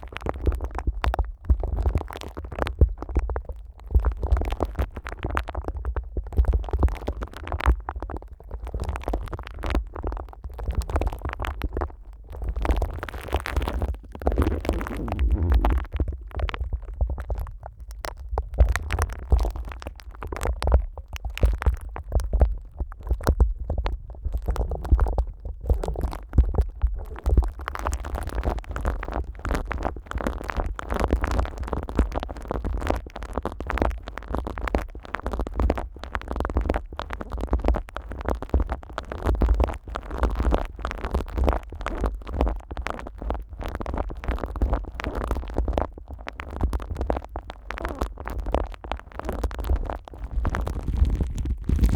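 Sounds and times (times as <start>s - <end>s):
low handling rumble: 14.1s - 16.2s, 50.2s - 51.9s
plastic film crackling and rustling: 50.3s - 51.9s.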